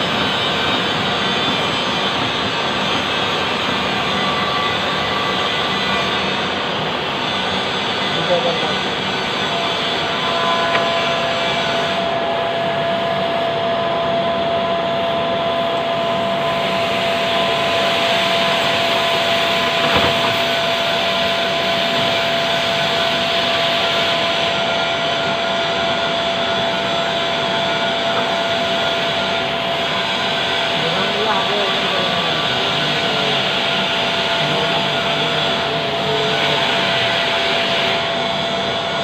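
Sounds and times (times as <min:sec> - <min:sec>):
lathe motor whine: 0:00.0 - 0:39.0
brief knock: 0:19.8 - 0:20.4.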